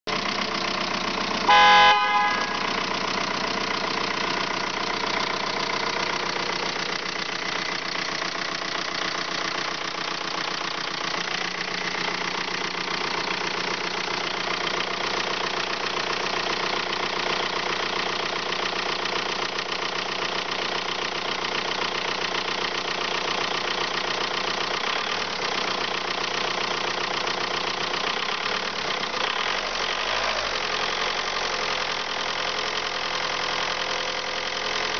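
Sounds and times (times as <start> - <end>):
car engine running: 0.1 - 34.9
short horn beep: 1.5 - 2.8.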